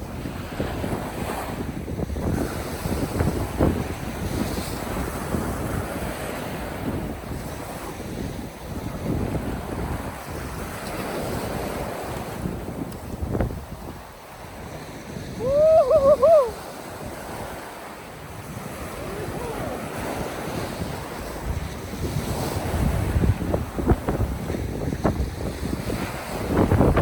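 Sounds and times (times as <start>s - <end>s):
surf breaking on beach: 0.0s - 27.0s
wind blowing over microphone: 0.0s - 27.0s
wind bumps on microphone: 0.0s - 27.0s
wavering pitched call: 15.4s - 16.6s.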